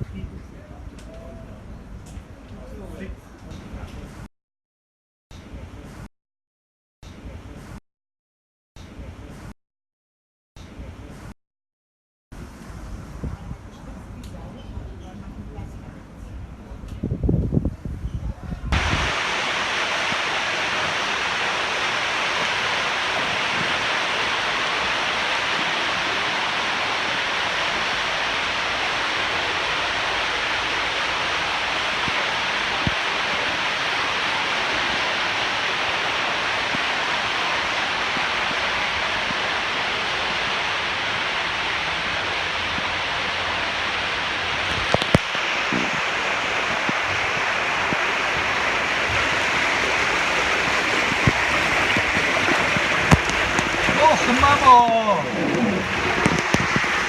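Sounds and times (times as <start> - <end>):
water rushing through slide: 18.7 - 57.0.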